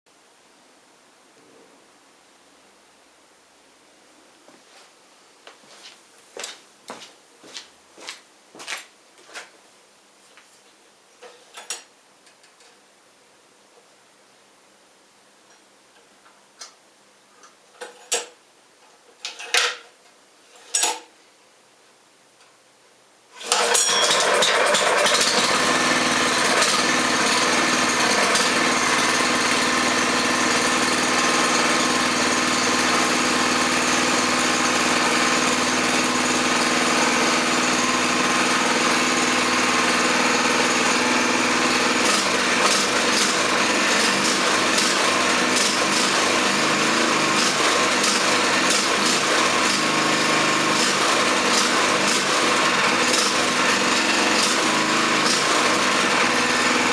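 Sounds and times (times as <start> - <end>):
small engine running loudly: 23.4 - 56.9.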